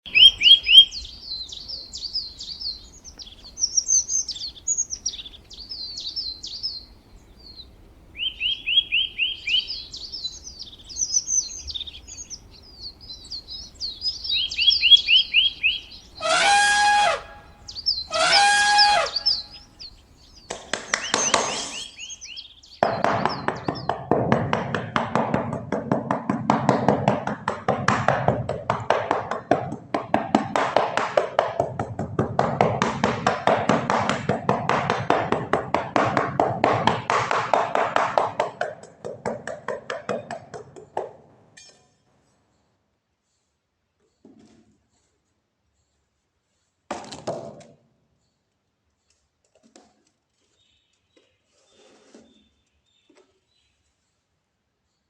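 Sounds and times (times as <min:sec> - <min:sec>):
small birds chirping and singing: 0:00.0 - 0:25.6, 0:31.6 - 0:41.0
loud pitched bird calls: 0:00.1 - 0:24.1
rapid tapping and clattering: 0:22.8 - 0:41.2.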